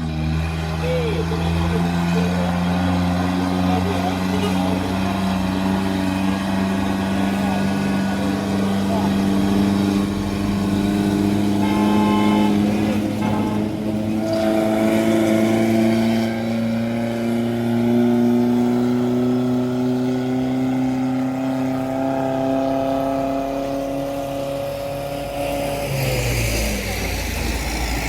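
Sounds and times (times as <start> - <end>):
heavy truck engine under load: 0.0 - 28.0.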